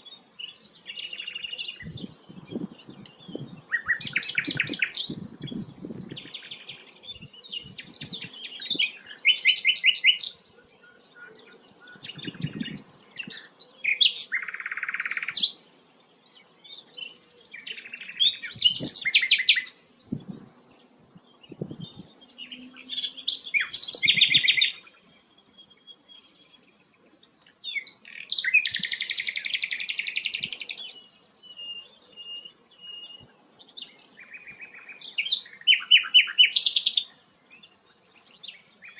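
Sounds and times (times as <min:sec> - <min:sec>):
flycatcher chirps and trills: 0:00.0 - 0:31.1
thin whistled bird notes: 0:00.0 - 0:38.9.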